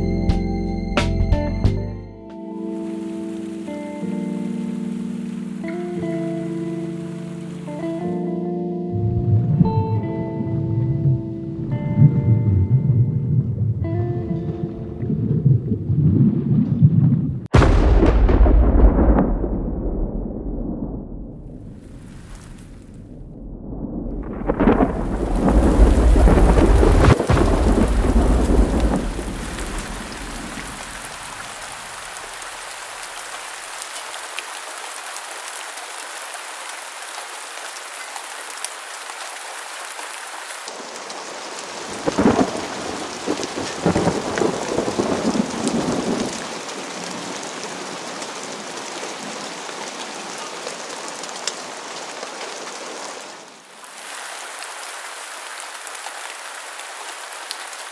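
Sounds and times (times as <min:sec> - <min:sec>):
falling water rushing: 0:02.6 - 0:08.2, 0:17.5 - 0:19.8, 0:21.4 - 0:23.1, 0:24.1 - 0:57.9
deep rumble: 0:09.0 - 0:21.8, 0:22.8 - 0:29.6.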